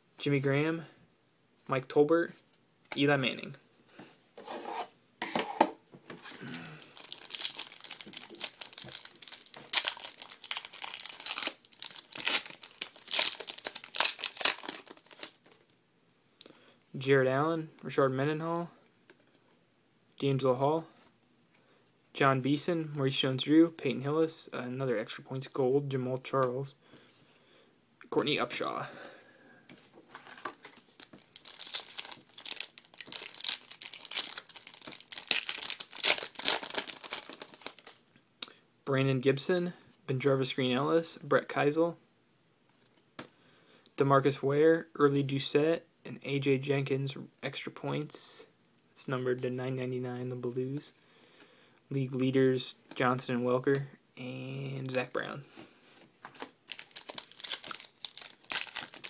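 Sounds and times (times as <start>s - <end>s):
plastic wrapper tearing and crinkling: 6.5s - 15.7s, 30.2s - 38.0s, 56.4s - 59.0s.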